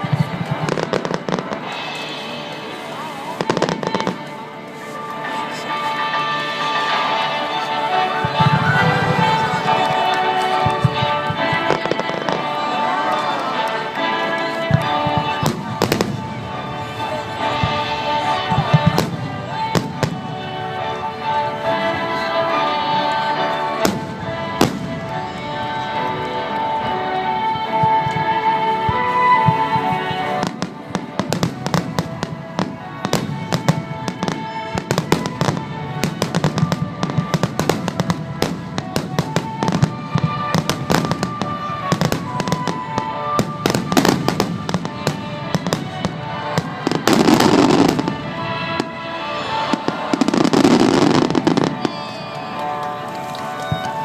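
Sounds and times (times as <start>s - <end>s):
fireworks popping and crackling: 0.0s - 5.7s, 8.2s - 20.6s, 29.0s - 54.0s
music over loudspeakers: 0.0s - 54.0s.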